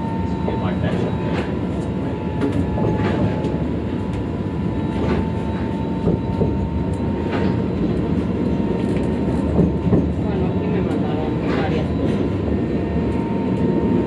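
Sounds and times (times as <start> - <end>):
high whine: 0.0 - 8.7
tram rumbling: 0.0 - 14.0.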